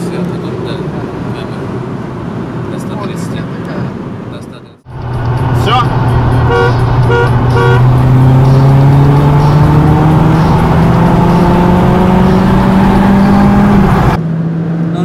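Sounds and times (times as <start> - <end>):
car engine accelerating: 4.9 - 15.0.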